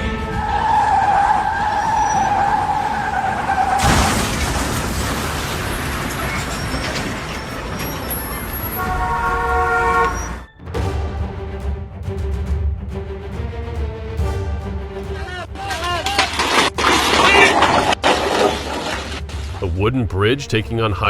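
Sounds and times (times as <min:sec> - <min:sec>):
road and traffic noise: 0:00.0 - 0:10.5
loud burst of noise: 0:03.8 - 0:08.8
car horn: 0:08.1 - 0:10.6.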